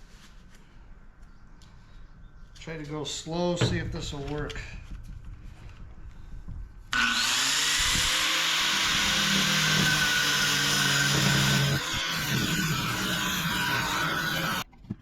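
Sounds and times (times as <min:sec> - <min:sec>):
power cutter cutting metal: 0:06.9 - 0:14.6.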